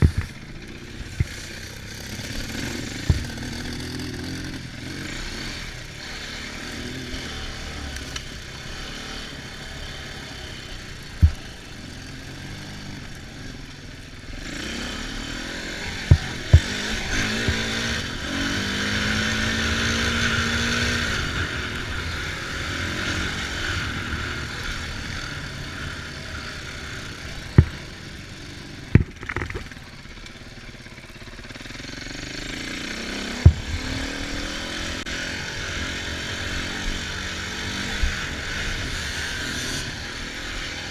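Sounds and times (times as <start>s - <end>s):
off-road engines revving: 0.0s - 40.9s
sharp knocks: 29.0s - 29.7s.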